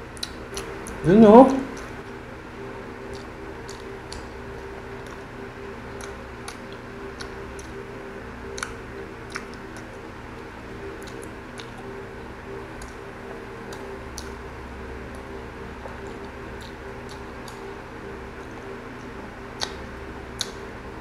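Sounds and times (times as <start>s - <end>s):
low background hum: 0.0s - 21.0s
person chewing food: 0.1s - 1.0s, 3.0s - 5.2s, 5.9s - 7.8s, 8.5s - 14.4s, 15.1s - 20.7s
wet clicks and smacks: 3.1s - 5.2s, 5.9s - 7.8s, 8.5s - 10.0s, 11.0s - 11.8s, 15.8s - 17.7s, 19.6s - 20.6s.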